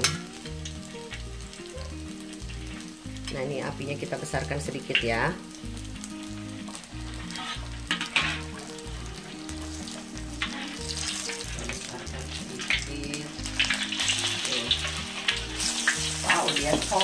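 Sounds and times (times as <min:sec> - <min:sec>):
background music with beat: 0:00.0 - 0:03.3, 0:04.3 - 0:17.0
food sizzling in hot oil: 0:00.0 - 0:17.0
metal spatula scraping wok: 0:06.2 - 0:17.0.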